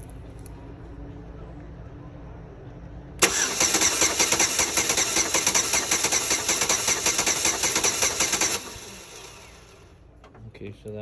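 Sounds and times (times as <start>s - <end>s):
starter motor cranking engine: 3.2s - 9.8s.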